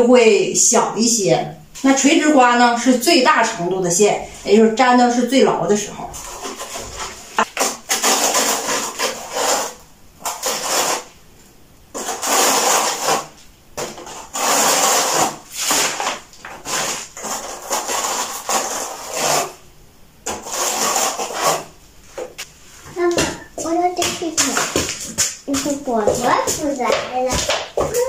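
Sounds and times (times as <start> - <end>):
trowel scraping tile adhesive: 6.1 - 11.1, 11.9 - 19.6, 20.2 - 21.8.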